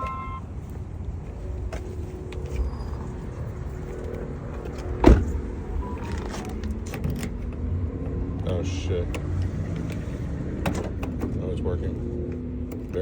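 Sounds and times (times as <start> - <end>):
lock clunk: 5.0 - 7.4.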